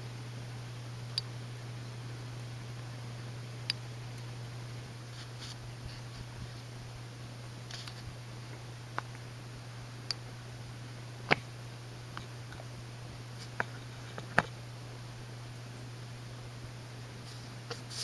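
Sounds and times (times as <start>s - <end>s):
ceiling fan motor hum: 0.0s - 18.0s.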